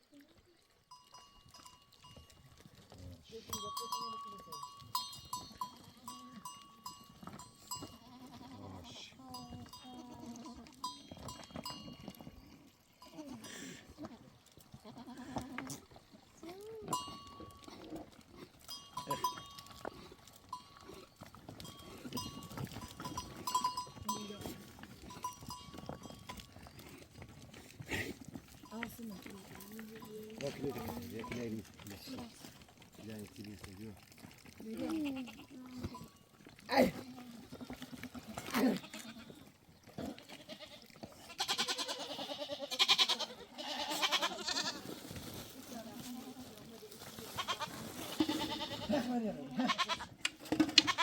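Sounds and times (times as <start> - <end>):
goat bells clinking: 0.6 - 51.0
goats bleating: 7.7 - 11.8, 13.0 - 16.0, 34.6 - 44.9, 47.2 - 51.0.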